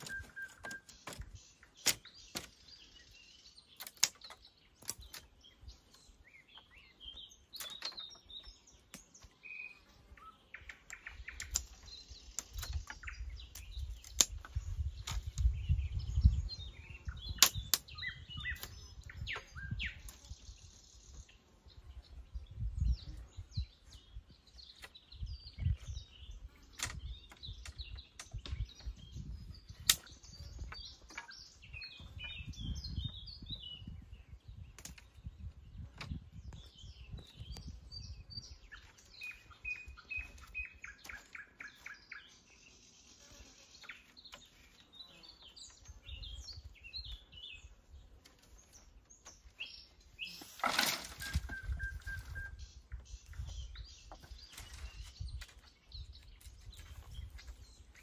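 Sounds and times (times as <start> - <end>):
small birds chirping: 0.0 - 58.0
sharp clicks: 3.8 - 5.3.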